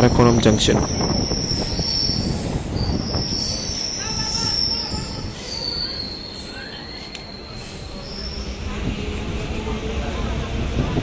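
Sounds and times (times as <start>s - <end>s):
train running rumble: 0.0s - 11.0s
wheel squeal: 0.9s - 8.6s.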